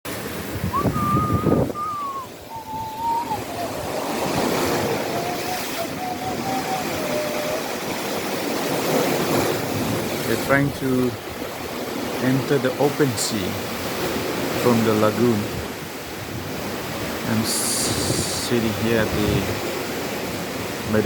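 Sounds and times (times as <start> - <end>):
wind buffeting microphone: 0.1 - 12.9, 13.5 - 21.0
waves washing: 0.1 - 21.0
outboard motor whining: 0.4 - 10.3.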